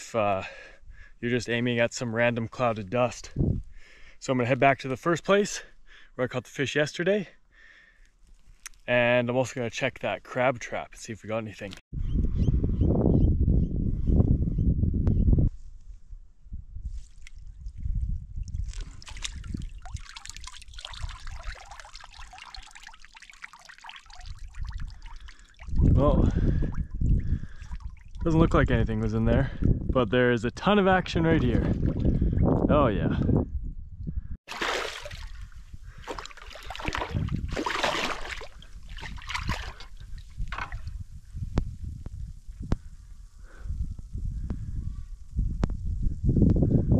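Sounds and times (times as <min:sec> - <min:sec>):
water splashing and sloshing: 0:16.9 - 0:28.3, 0:31.3 - 0:32.4, 0:34.5 - 0:41.0
water pouring off a trap: 0:18.7 - 0:25.8, 0:34.5 - 0:35.4.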